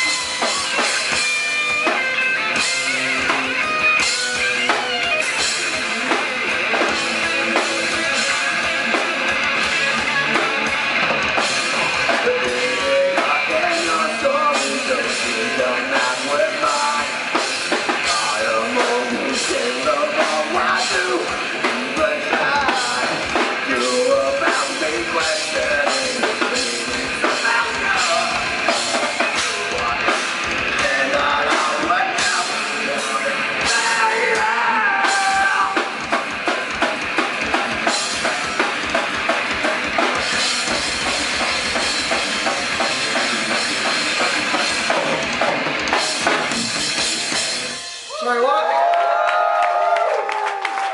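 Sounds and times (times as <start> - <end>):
drum kit beat: 0.0 - 48.3
electric guitar: 0.0 - 50.9
rock band playing: 0.0 - 50.9.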